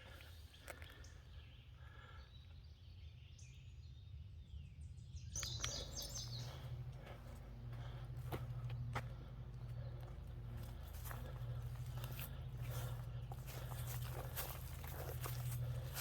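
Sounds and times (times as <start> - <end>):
wild birds calling: 0.0 - 3.6, 5.4 - 16.0
low steady rumble: 4.9 - 16.0.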